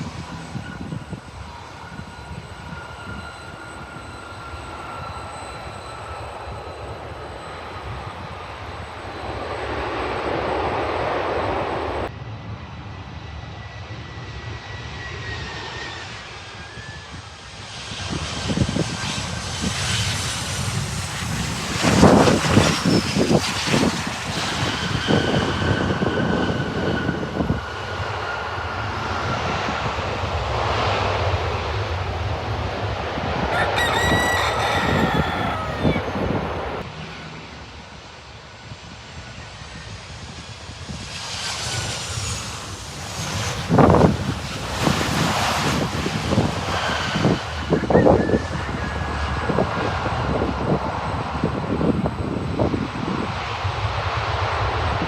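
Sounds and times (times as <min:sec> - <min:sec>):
wind hitting microphone: 0:00.0 - 0:04.0, 0:18.0 - 0:27.8, 0:33.4 - 0:37.6, 0:39.8 - 0:55.0
jet engines whining: 0:00.0 - 0:12.1, 0:18.5 - 0:27.8, 0:33.5 - 0:49.6
rooster crowing: 0:33.5 - 0:36.3.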